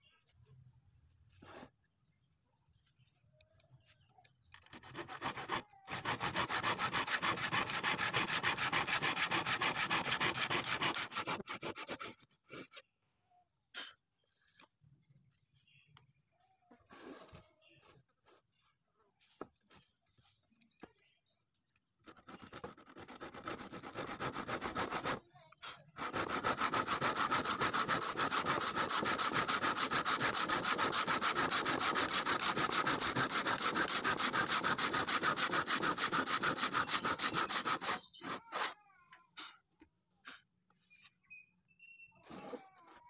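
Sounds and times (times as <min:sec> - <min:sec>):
hand saw cutting wood: 0:04.5 - 0:12.9, 0:22.0 - 0:38.8, 0:39.4 - 0:39.6, 0:42.2 - 0:43.0.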